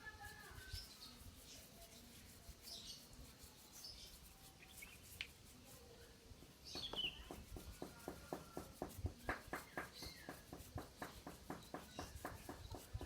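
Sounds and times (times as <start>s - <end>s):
faint bird chirps: 0.1s - 8.6s.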